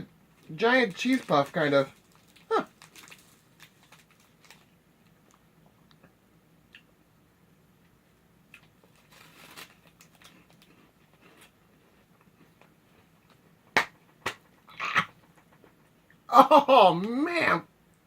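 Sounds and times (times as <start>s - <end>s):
chewing crunchy snack: 1.0s - 4.7s, 8.5s - 15.9s.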